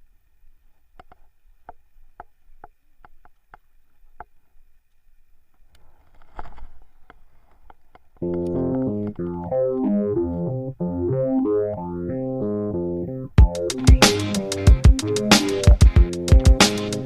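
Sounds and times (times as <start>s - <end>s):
keyboard music: 8.2s - 17.0s.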